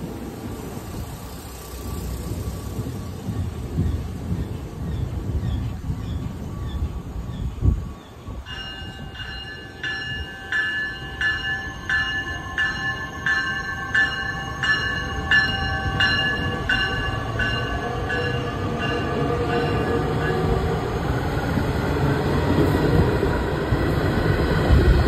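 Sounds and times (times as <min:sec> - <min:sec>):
train cars rumbling: 0:00.0 - 0:25.0
train bell ringing: 0:07.9 - 0:22.0.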